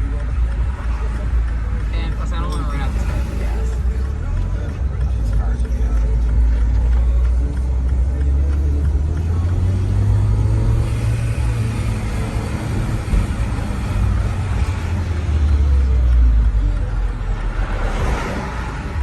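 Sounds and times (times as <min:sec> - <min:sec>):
car engine droning: 0:00.0 - 0:19.0
rushing noise: 0:09.4 - 0:19.0.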